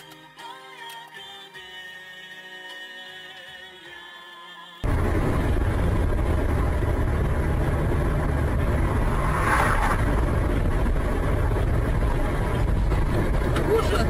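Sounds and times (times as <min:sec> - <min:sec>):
car engine and road rumble: 0:04.8 - 0:14.0.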